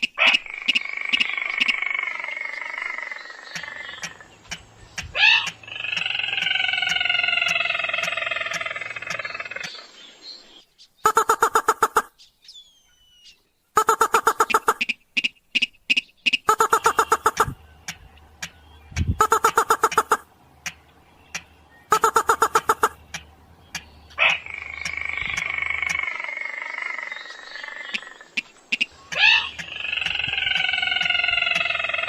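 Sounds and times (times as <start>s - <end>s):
rail bird calls: 0.0s - 32.0s.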